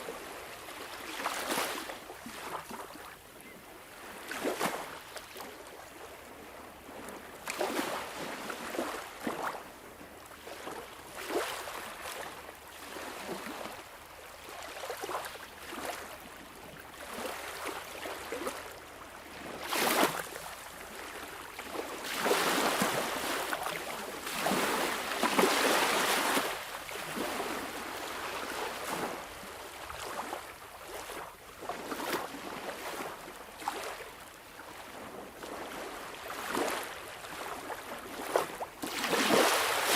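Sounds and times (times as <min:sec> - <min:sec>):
sea waves washing and splashing: 0:10.4 - 0:39.9.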